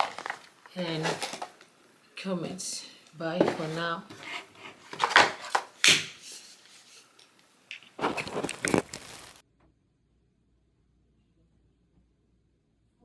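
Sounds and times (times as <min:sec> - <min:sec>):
handling knocks and rubbing clatters: 0:00.0 - 0:01.6, 0:03.2 - 0:07.0.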